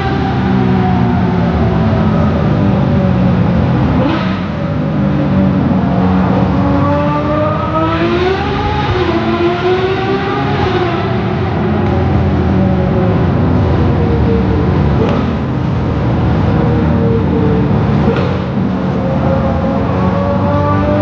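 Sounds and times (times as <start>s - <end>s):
low engine drone: 0.0s - 21.0s
racing engine revving: 0.0s - 21.0s.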